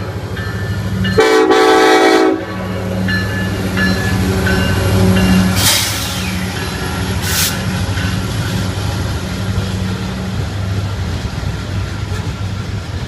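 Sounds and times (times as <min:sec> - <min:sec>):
rushing rail noise: 0:00.0 - 0:13.0
train passing: 0:00.0 - 0:13.0.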